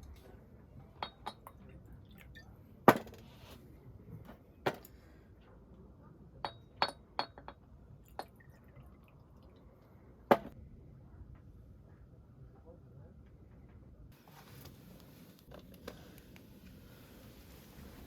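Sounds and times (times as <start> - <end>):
dishes and glassware clinking: 0.9 - 1.7, 6.4 - 7.6.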